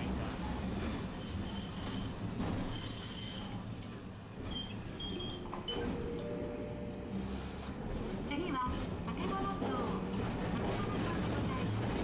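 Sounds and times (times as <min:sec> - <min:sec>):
tram rumbling: 0:00.0 - 0:12.0
tram wheels squealing: 0:00.6 - 0:05.8.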